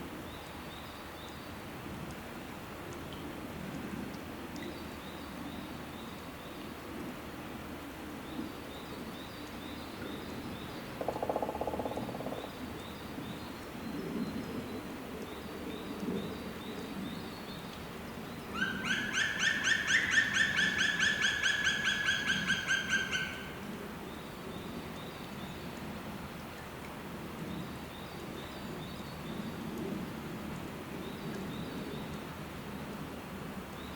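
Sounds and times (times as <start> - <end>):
outdoor background noise: 0.0 - 33.9.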